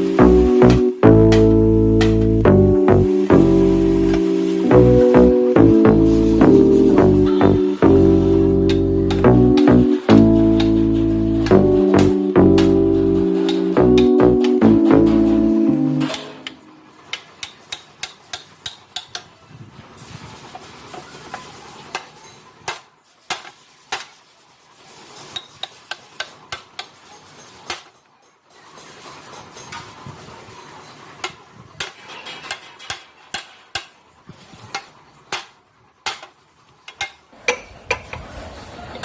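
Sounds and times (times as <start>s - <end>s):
metal scraping and rubbing: 0.0s - 17.7s.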